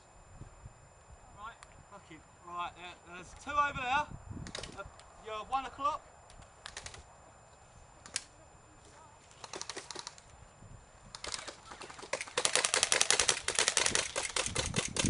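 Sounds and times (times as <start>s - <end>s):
airsoft guns firing: 9.4s - 10.2s, 11.2s - 15.0s.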